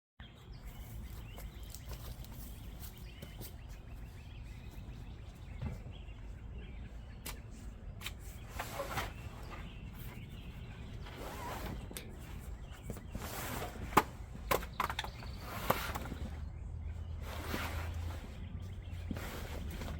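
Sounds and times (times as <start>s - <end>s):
rustling swishes: 17.1s - 19.9s.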